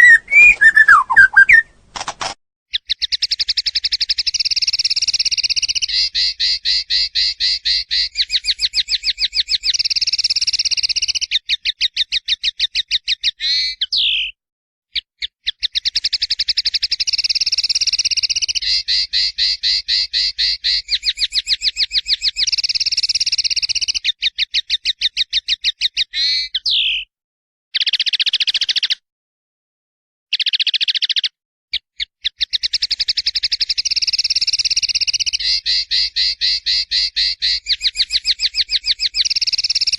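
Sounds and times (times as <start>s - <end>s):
songbird trilling: 0.0s - 1.8s, 2.8s - 14.3s, 15.5s - 24.2s, 32.2s - 39.9s.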